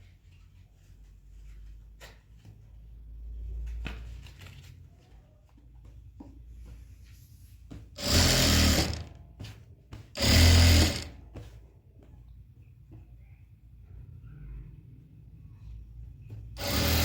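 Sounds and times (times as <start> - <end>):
sewing machine stitching: 8.0 - 9.2, 10.2 - 11.2, 16.6 - 17.0.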